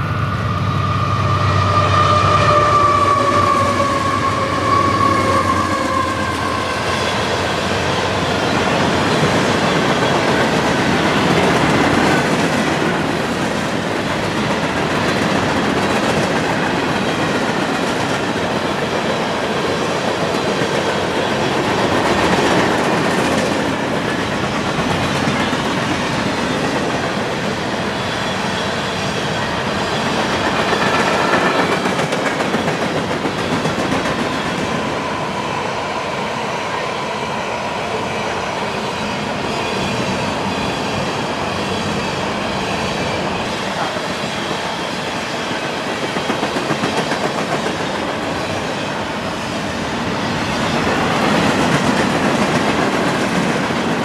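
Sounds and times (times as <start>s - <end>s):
locomotive drone: 0.0s - 54.0s.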